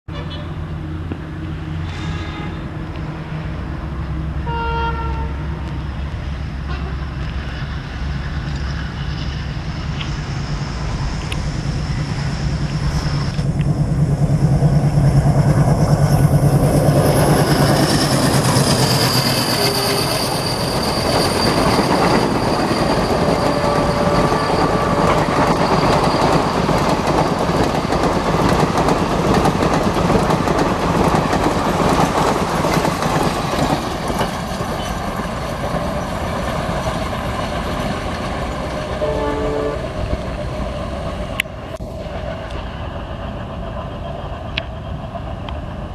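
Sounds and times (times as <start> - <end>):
locomotive engine drone: 0.1 - 45.9
train horn: 4.4 - 5.7, 6.7 - 7.1, 19.4 - 20.3, 23.1 - 25.3, 38.9 - 40.2
train wheels clattering on rails: 12.5 - 39.0.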